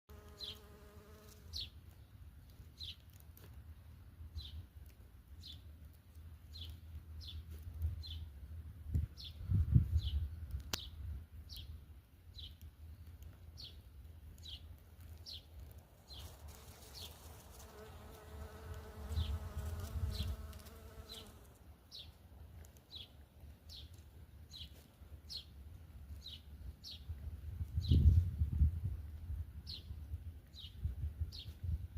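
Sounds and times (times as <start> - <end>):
insect buzzing: 0.1 - 1.6, 16.1 - 21.6.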